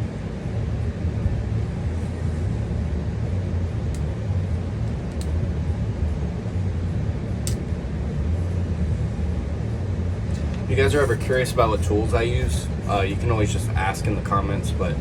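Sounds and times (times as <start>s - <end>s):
steady low hum: 0.0s - 15.0s
pliers clicks: 7.4s - 7.6s.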